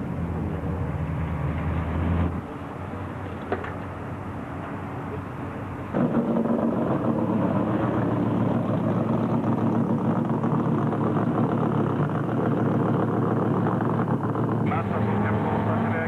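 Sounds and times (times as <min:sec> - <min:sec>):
car engine at low revs: 0:05.0 - 0:16.0.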